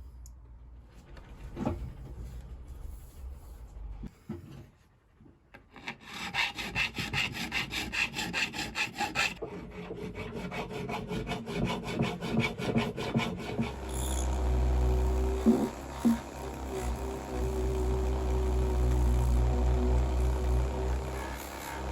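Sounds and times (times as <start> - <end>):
steady low hum: 13.6 - 21.9.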